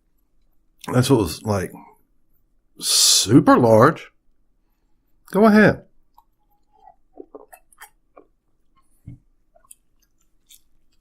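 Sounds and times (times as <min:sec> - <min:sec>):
person chewing food: 0:06.0 - 0:11.0.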